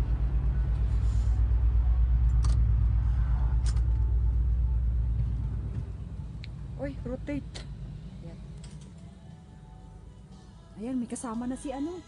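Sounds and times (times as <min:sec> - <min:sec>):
low throbbing rumble: 0:00.0 - 0:10.2.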